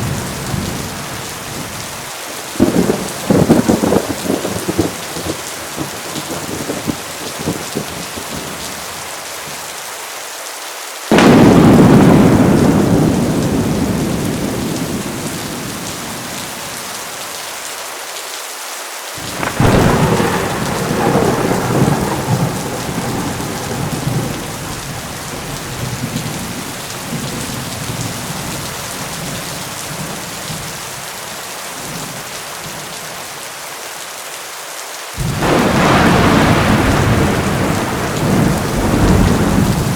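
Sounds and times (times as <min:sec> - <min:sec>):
thunder rumbling: 0:00.0 - 0:08.6, 0:11.1 - 0:17.1, 0:19.2 - 0:30.8, 0:35.2 - 0:39.9
heavy rain: 0:00.0 - 0:39.9.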